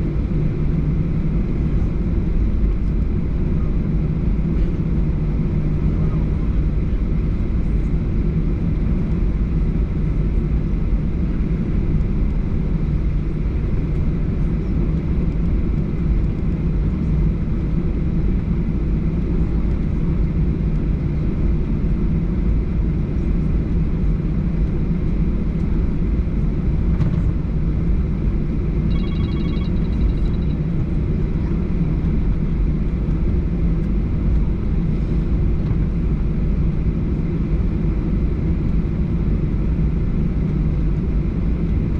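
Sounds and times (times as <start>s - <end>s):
jet engine rumble in cabin: 0.0s - 41.9s
faint electronic tone: 28.9s - 30.6s.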